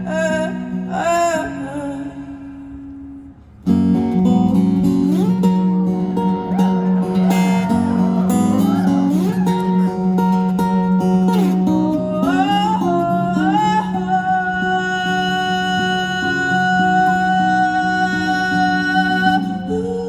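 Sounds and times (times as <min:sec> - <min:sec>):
acoustic guitar: 0:00.0 - 0:20.0
person singing wordlessly: 0:06.2 - 0:20.0.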